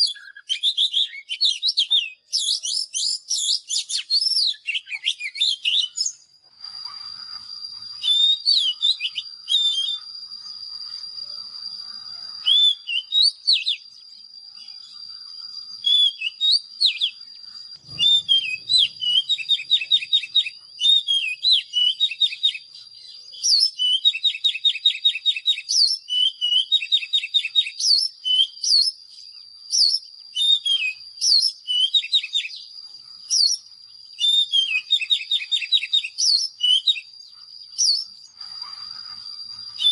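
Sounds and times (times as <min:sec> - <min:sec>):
bird singing: 0:00.0 - 0:39.9
steady thin high tone: 0:06.1 - 0:20.7.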